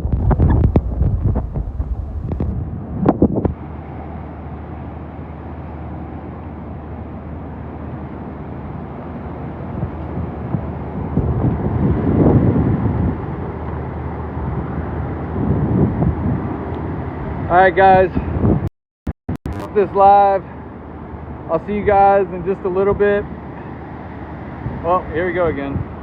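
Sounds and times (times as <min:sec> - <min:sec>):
strong wind gusting over microphone: 0:00.0 - 0:04.6, 0:08.2 - 0:18.7, 0:21.0 - 0:26.0.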